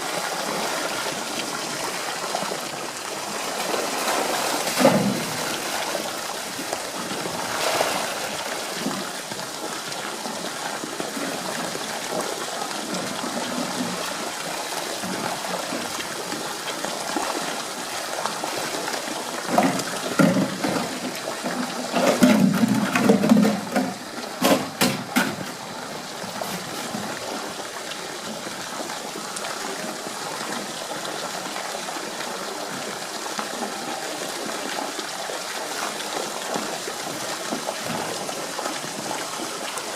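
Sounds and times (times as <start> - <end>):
running water rushing: 0.0 - 39.9
sharp knocks: 22.0 - 25.6.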